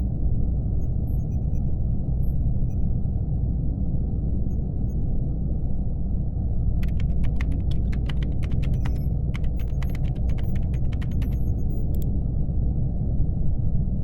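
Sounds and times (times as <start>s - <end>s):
laptop keyboard typing: 6.8s - 12.0s.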